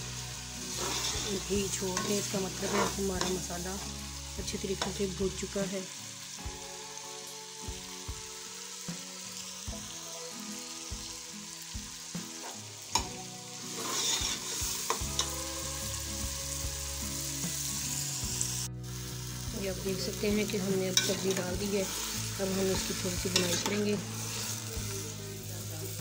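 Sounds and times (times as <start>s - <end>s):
masala sizzling in oil: 0.0s - 26.0s
metal ladle scraping a pot: 0.6s - 3.5s, 13.7s - 15.3s, 21.0s - 22.2s.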